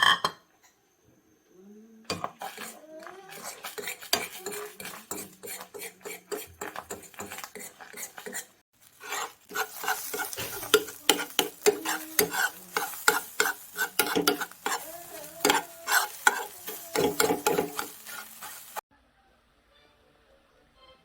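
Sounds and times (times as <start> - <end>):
utensil stirring in a pot: 2.1 - 18.8.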